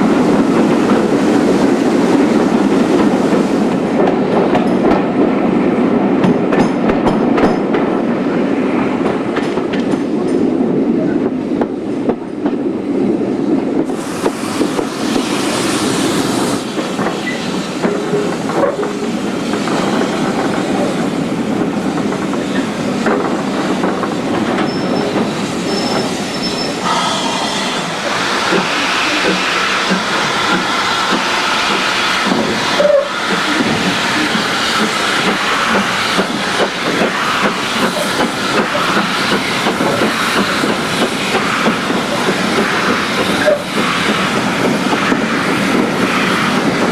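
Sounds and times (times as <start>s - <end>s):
steam hissing: 0.0s - 4.0s, 13.8s - 46.9s
train running noise: 0.0s - 46.9s.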